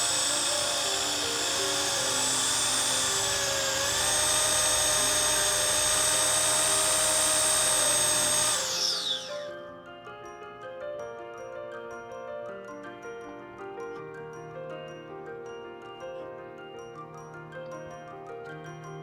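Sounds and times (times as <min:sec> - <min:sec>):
power tool high whine: 0:00.0 - 0:09.7
background music: 0:00.0 - 0:19.0.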